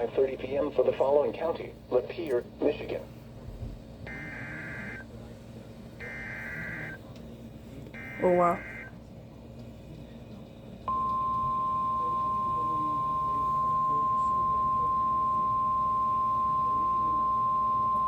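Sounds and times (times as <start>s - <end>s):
high steady alarm beep: 4.1s - 5.0s, 6.0s - 7.0s, 8.0s - 8.9s, 10.9s - 18.0s.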